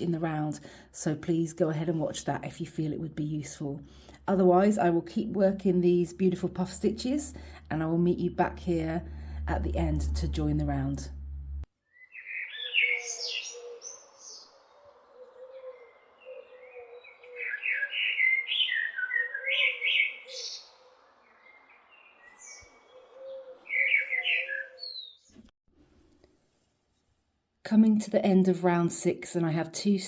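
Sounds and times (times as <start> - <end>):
birds chirping: 11.9 - 25.5.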